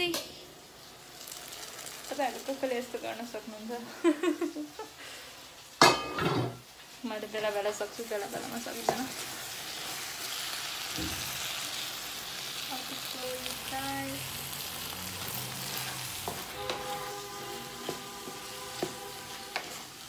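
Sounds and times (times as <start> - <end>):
curry sizzling in a pot: 0.0 - 20.0
wooden spoon knocking and scraping pan: 8.8 - 9.2, 16.2 - 19.8.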